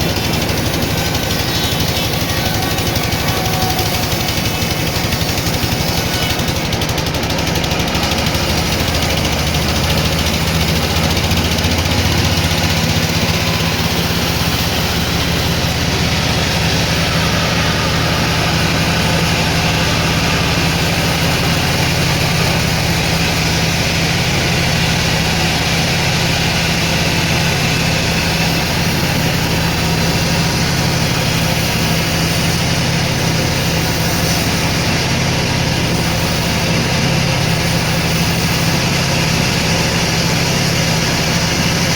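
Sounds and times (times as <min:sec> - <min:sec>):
machinery engine hum: 0:00.0 - 0:41.9.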